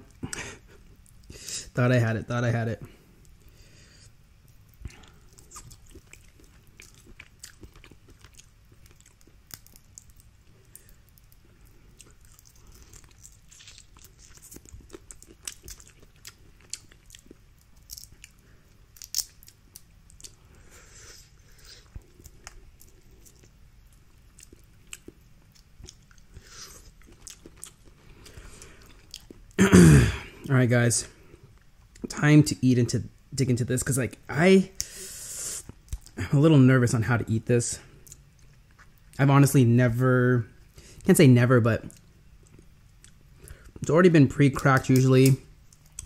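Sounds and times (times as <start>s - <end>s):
chewing and biting: 4.5s - 18.4s, 21.8s - 29.6s.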